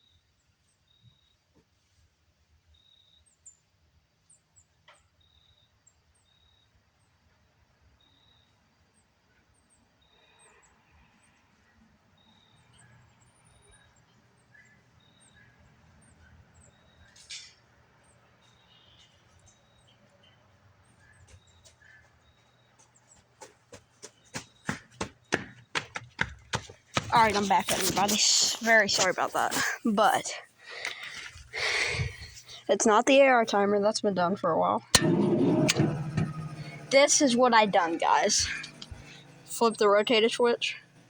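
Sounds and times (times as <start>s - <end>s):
faint bird chirps: 18.4s - 23.2s.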